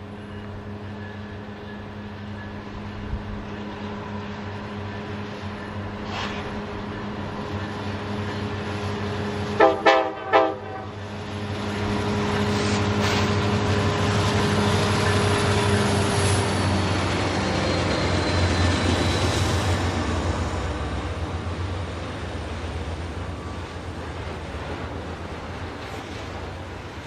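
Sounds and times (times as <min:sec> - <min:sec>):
diesel locomotives humming: 0:00.0 - 0:27.0
train rumble: 0:00.0 - 0:27.0
train horn blasts: 0:09.5 - 0:11.0.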